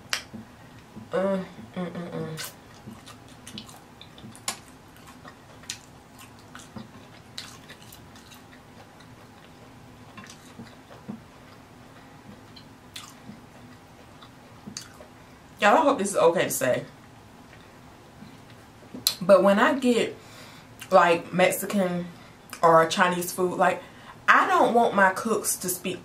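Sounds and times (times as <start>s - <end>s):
person chewing with wet smacks: 2.4s - 15.2s, 17.0s - 19.2s.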